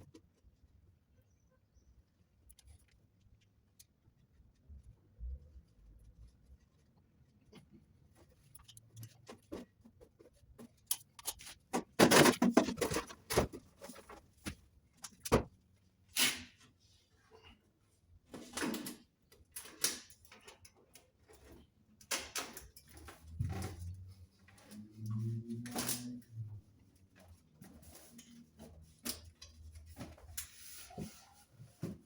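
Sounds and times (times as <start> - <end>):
metal roof plate knocking and rattling: 11.7 - 13.6.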